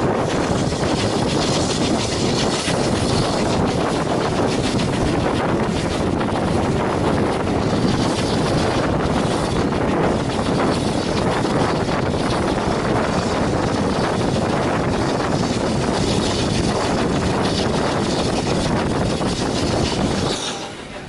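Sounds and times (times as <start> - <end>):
train rumbling: 0.0 - 21.0
wind buffeting microphone: 0.0 - 21.0.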